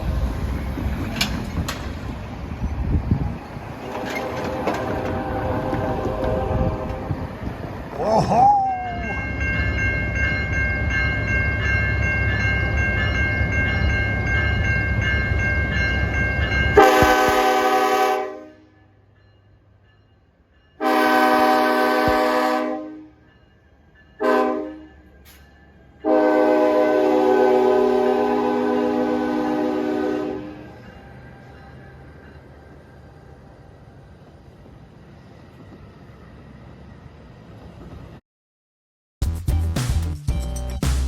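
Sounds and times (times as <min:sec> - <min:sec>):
train rumbling: 0:00.0 - 0:38.2
locomotive air horn blasts: 0:03.9 - 0:07.4, 0:16.8 - 0:18.8, 0:20.8 - 0:23.2, 0:24.2 - 0:24.9, 0:26.0 - 0:30.7.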